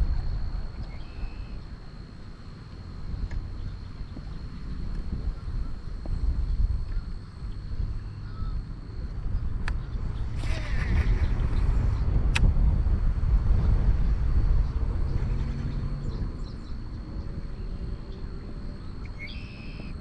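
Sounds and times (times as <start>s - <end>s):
wind buffeting microphone: 0.0s - 20.0s
sharp click: 12.3s - 12.5s.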